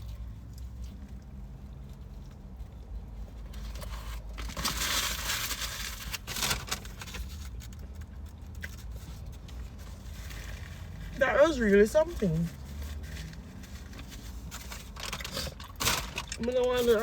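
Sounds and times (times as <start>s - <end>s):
paper wrapping crumpling: 3.7s - 17.0s.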